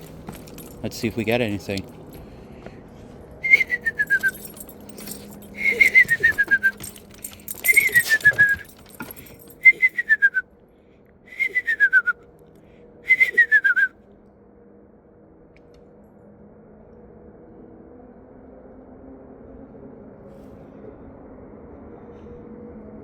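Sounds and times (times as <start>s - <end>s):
person whistling owl call: 3.4s - 4.4s, 5.6s - 6.8s, 7.7s - 8.6s, 9.6s - 10.4s, 11.3s - 12.2s, 13.1s - 13.9s.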